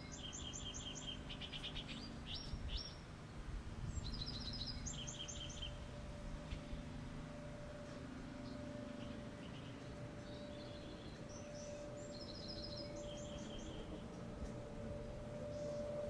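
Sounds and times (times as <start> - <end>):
low outdoor rumble: 0.0 - 16.0
songbird chirping: 0.0 - 16.0.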